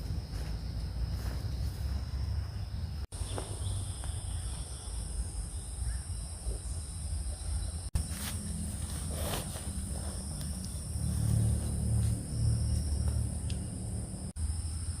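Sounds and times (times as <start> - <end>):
insects trilling: 0.0 - 15.0
low rumble: 8.4 - 14.4.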